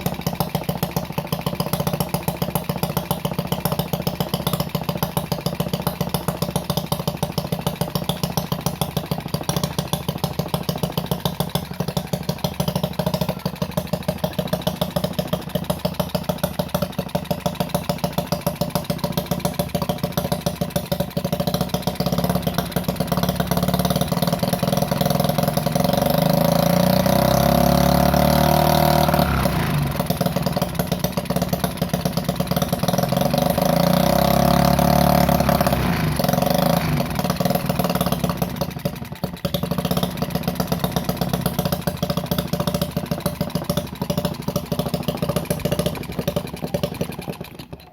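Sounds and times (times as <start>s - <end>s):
small engine running: 10.6s - 47.9s.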